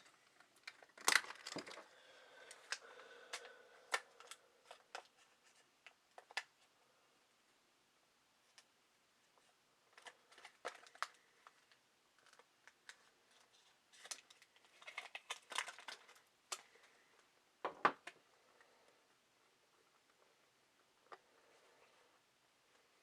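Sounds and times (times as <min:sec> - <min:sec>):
packaging box crinkling and rustling: 0:00.0 - 0:01.9, 0:09.9 - 0:16.7.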